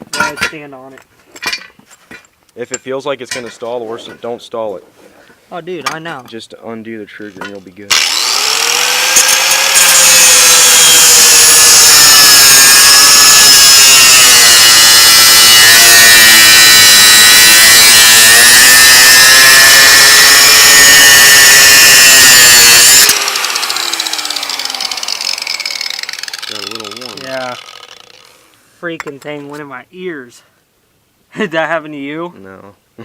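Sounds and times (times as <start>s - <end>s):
grinder cutting metal: 7.9s - 28.4s.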